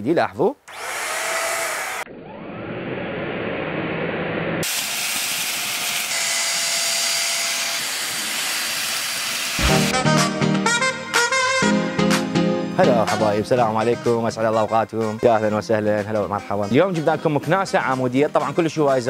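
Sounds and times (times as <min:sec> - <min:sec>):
vacuum cleaner running: 0:00.7 - 0:09.9.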